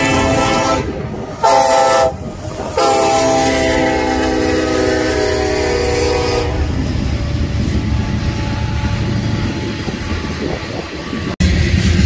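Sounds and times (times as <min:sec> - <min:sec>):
locomotive air horn: 0:00.0 - 0:07.0
train wheels on rails: 0:00.0 - 0:12.0.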